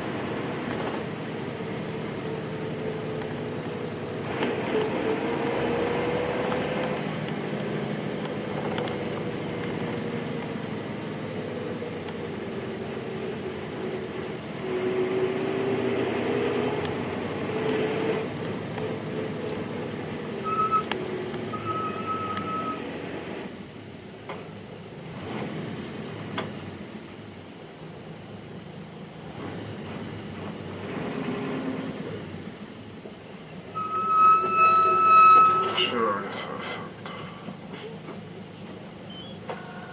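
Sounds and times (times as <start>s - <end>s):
bus diesel engine running: 0.0s - 39.9s
electronic beeps: 20.4s - 20.9s, 21.5s - 22.8s.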